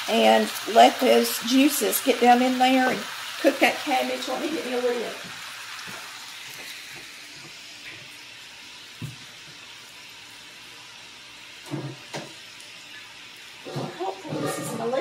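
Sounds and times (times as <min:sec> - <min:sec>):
cabbage sizzling in skillet: 0:00.0 - 0:15.0
cookware clunking in cabinet: 0:13.7 - 0:15.0.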